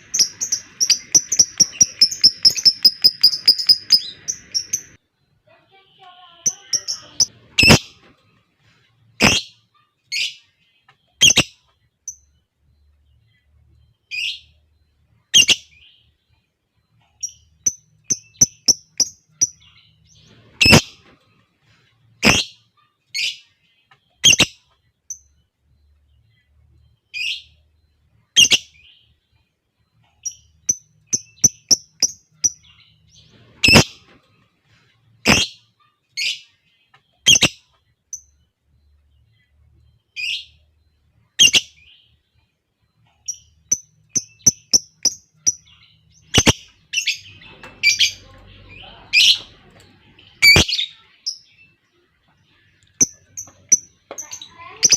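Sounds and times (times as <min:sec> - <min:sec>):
lovebirds shrill calls: 0:00.0 - 0:05.0, 0:06.5 - 0:08.0, 0:09.2 - 0:09.5, 0:20.4 - 0:21.0, 0:35.2 - 0:35.6, 0:43.3 - 0:49.6.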